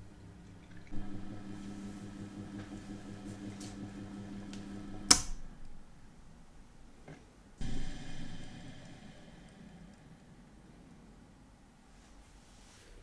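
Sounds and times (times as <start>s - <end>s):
electric motor humming: 0.9s - 6.0s
sharp switch click: 5.1s - 5.4s.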